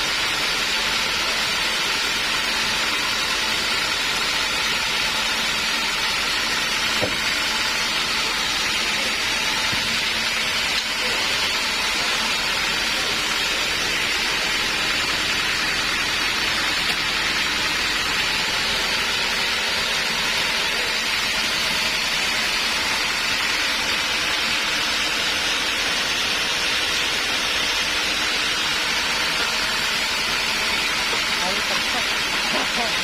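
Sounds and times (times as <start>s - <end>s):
saw blade rasping through log: 0.1s - 33.0s.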